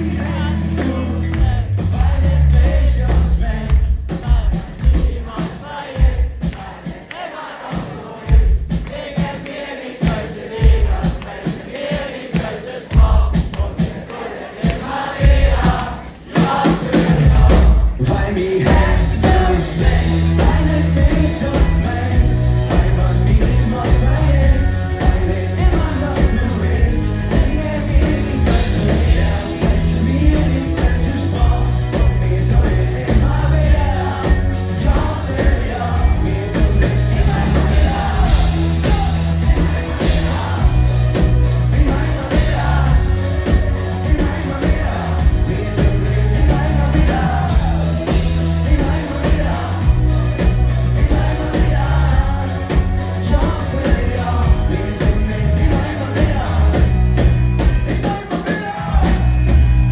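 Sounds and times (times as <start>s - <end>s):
live rock band playing: 0.0s - 3.7s, 16.5s - 59.9s
heavy bass line: 0.0s - 4.5s, 17.0s - 58.2s, 58.8s - 59.9s
lead vocal singing: 0.0s - 59.9s.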